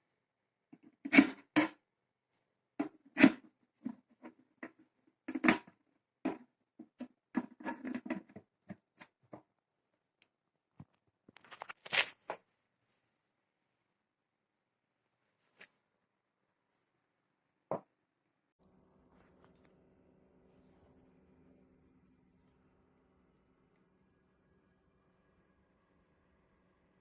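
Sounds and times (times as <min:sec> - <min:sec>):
objects being handled: 0:10.8 - 0:12.4.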